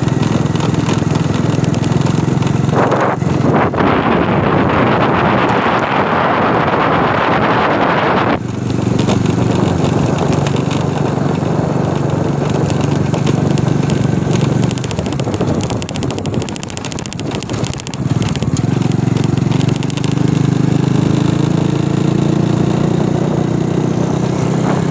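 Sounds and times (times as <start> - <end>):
vehicle engine running: 0.0 - 24.9.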